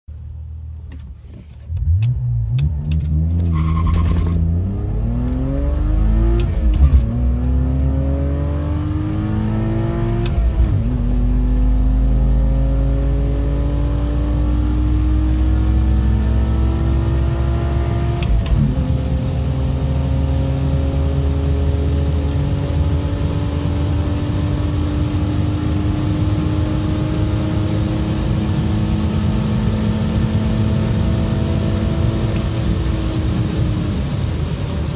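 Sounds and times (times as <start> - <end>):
car engine at full throttle: 0.1 - 34.9.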